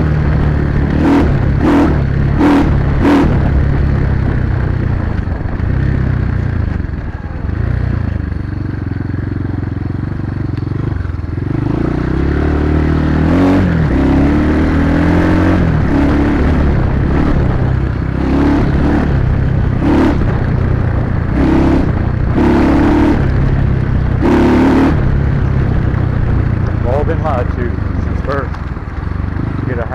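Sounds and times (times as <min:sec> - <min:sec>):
dirt bike engine revving: 0:00.0 - 0:06.5, 0:10.7 - 0:29.9.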